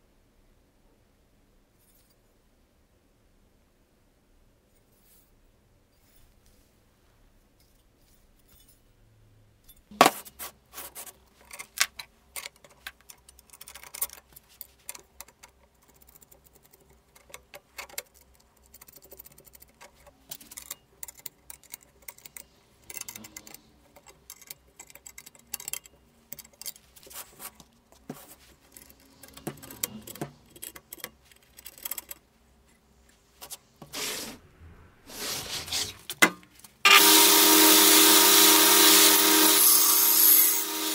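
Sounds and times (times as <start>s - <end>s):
metallic clicks and rattles: 11.3s - 27.6s, 28.4s - 32.9s.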